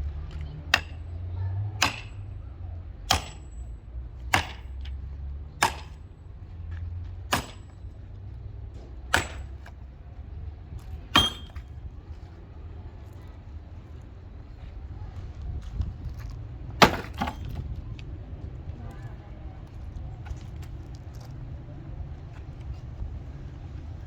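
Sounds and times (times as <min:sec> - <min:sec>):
sharp knocks with ringing: 0:01.8 - 0:02.3, 0:03.1 - 0:03.7, 0:04.3 - 0:04.8, 0:05.6 - 0:06.0, 0:07.3 - 0:07.8, 0:09.1 - 0:09.7, 0:11.2 - 0:11.6.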